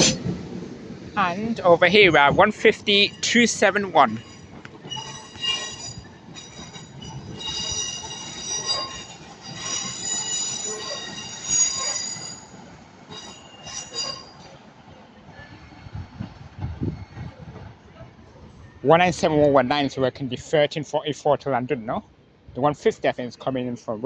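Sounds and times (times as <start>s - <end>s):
train wheels squealing: 2.2s - 15.9s.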